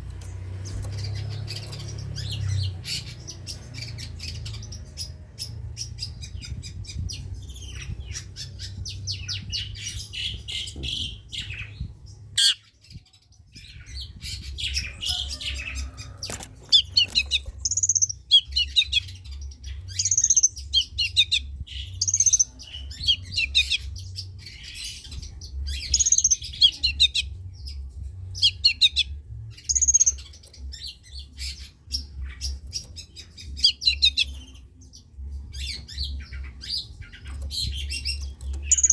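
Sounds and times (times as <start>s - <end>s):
shrike singing: 12.4s - 12.6s.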